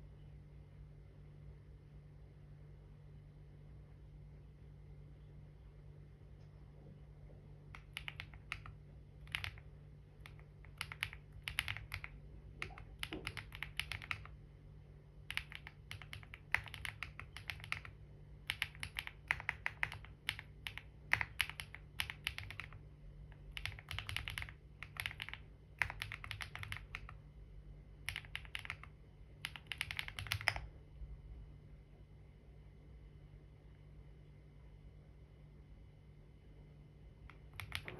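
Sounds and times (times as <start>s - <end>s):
typing on computer keyboard: 7.8s - 14.4s, 15.3s - 27.2s, 28.1s - 30.7s, 37.3s - 37.9s.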